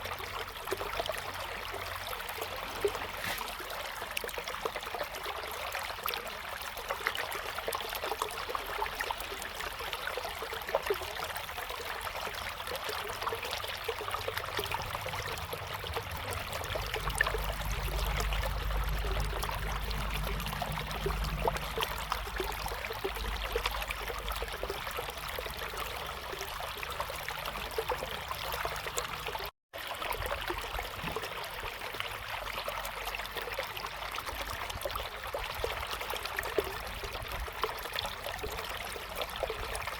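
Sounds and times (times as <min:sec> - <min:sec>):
river flowing over stones: 0:00.0 - 0:39.9
small water splashes: 0:00.0 - 0:39.9
low rumble: 0:14.1 - 0:26.0.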